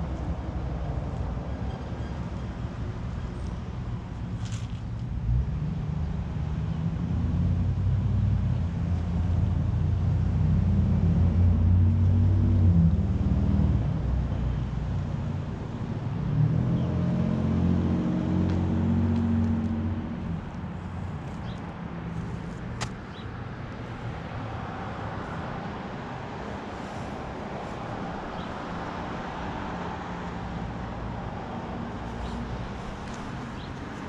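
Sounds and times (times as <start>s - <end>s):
motor vehicle engines humming: 0.0s - 34.0s.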